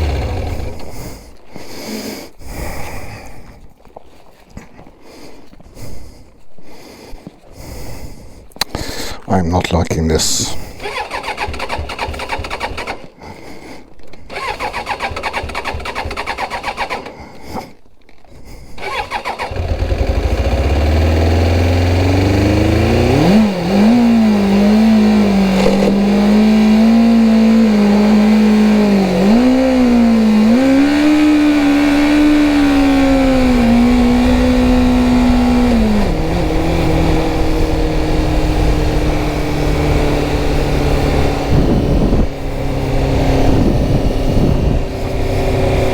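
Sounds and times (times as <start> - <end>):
motorcycle engine sputtering: 0.0 - 1.4, 10.8 - 13.1, 14.3 - 17.2, 18.8 - 45.9.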